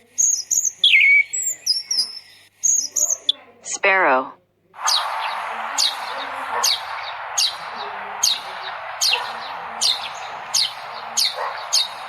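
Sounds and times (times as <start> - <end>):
sparrow chirping: 0.0 - 3.4, 4.8 - 12.0
background hiss: 4.8 - 12.0.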